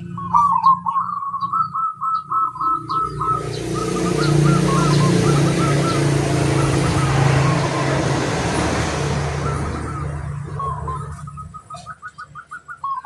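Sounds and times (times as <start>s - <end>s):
dove cooing: 0.0s - 13.0s
small birds chirping: 0.0s - 13.0s
steady traffic noise: 0.0s - 13.0s.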